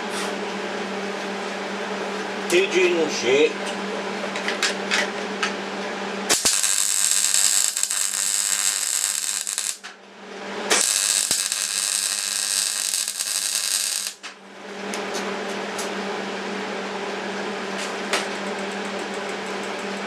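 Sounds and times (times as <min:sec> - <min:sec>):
welding arc crackling and hissing: 0:06.3 - 0:09.9, 0:10.7 - 0:14.3.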